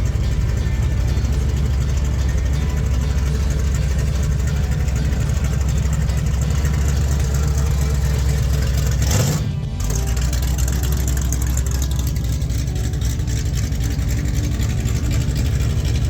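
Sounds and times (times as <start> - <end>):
car engine rumbling past: 0.0 - 16.0.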